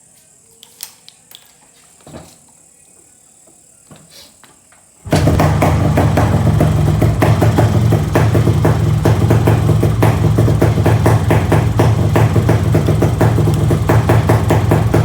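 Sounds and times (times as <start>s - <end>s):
two-stroke motorcycle engine popping: 5.1s - 15.0s.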